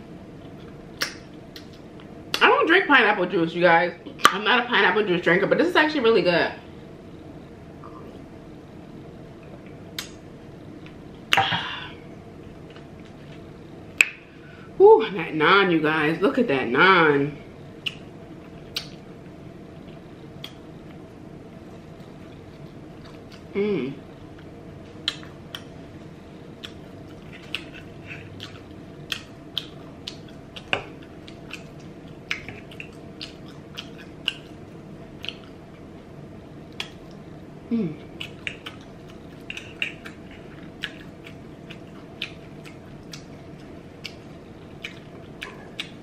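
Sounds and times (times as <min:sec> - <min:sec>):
lip smacks and mouth clicks: 0:00.6 - 0:02.4, 0:10.0 - 0:10.2, 0:17.8 - 0:18.1, 0:18.7 - 0:19.0, 0:19.8 - 0:20.6, 0:25.0 - 0:25.7, 0:26.6 - 0:34.5, 0:35.2 - 0:35.6, 0:36.7 - 0:37.2, 0:38.2 - 0:46.0
chewing and wet mouth sounds: 0:21.8 - 0:23.5, 0:24.3 - 0:36.1, 0:36.7 - 0:37.3, 0:38.0 - 0:46.0
person humming mmm: 0:23.5 - 0:24.0, 0:37.7 - 0:38.2.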